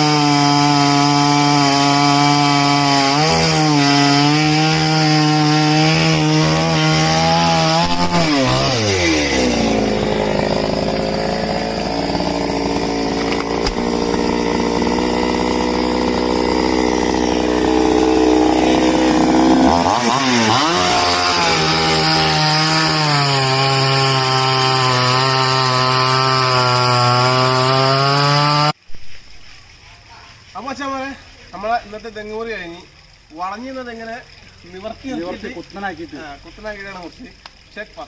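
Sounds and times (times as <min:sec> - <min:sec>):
chainsaw running: 0:00.0 - 0:28.8.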